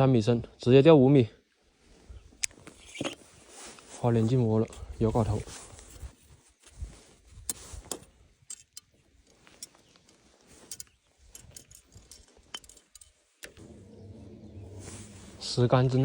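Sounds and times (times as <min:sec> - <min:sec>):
fishing tackle clicking: 0:10.7 - 0:13.6.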